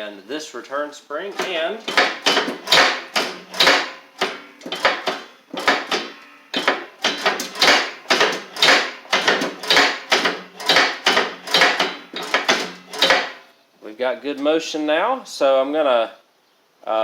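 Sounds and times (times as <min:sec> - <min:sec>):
sharp metal clacks: 0:01.3 - 0:13.5.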